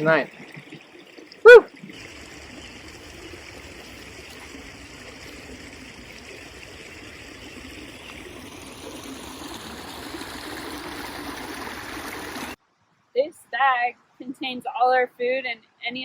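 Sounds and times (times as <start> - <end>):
creek water running: 0.0 - 12.6.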